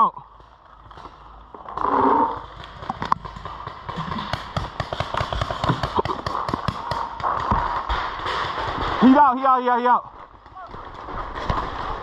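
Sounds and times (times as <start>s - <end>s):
paintball markers firing: 2.8s - 8.5s.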